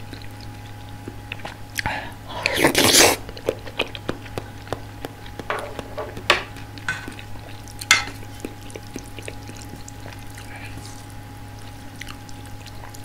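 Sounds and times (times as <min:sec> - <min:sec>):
mouth smacks: 0:00.0 - 0:05.5
wet chewing: 0:00.0 - 0:13.0.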